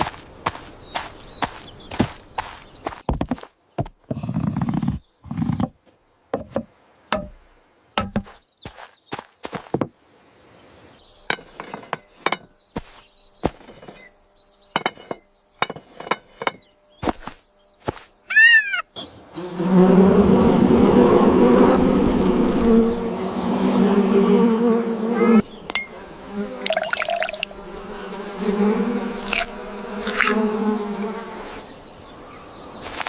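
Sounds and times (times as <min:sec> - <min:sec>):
sharp knocks and taps: 0:06.4 - 0:07.4, 0:08.0 - 0:08.8
low buzzing drone: 0:19.4 - 0:31.5.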